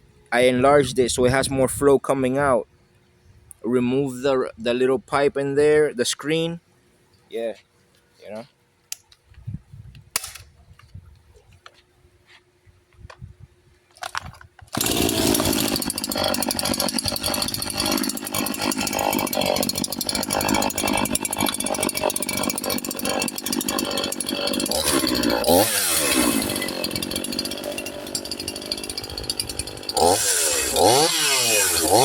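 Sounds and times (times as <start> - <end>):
chainsaw running at high revs: 14.8 - 32.0.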